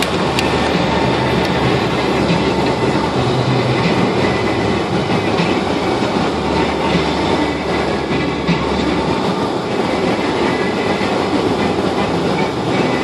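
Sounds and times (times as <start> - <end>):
loud rushing rumble: 0.0 - 13.0.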